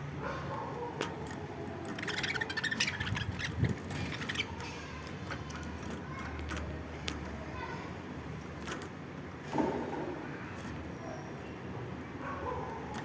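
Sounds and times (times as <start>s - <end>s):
harsh rapid bird chattering: 2.0s - 4.6s.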